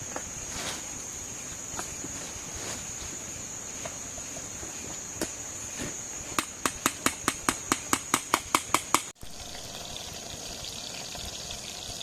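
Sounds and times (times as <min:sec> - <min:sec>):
high-pitched insect trill: 0:00.0 - 0:12.0
rapid sharp knocks: 0:06.4 - 0:09.1.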